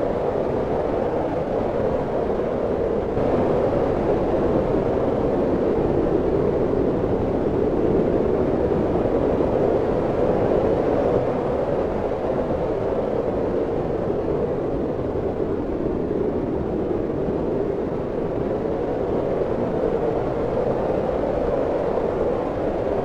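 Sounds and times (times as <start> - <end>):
wind blowing: 3.2 - 5.5.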